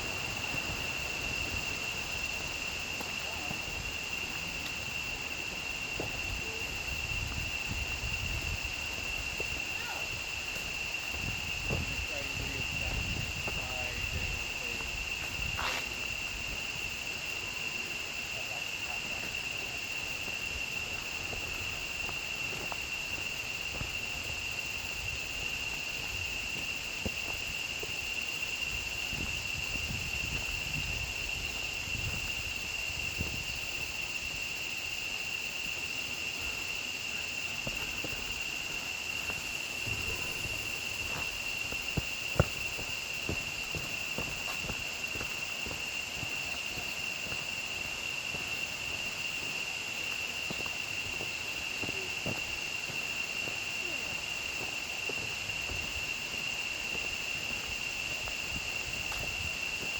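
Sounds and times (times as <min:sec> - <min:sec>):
footsteps on a trail: 0:00.0 - 0:08.1, 0:08.7 - 0:17.1, 0:19.0 - 0:33.5, 0:36.4 - 0:59.9
insect chorus buzzing: 0:00.0 - 0:59.9.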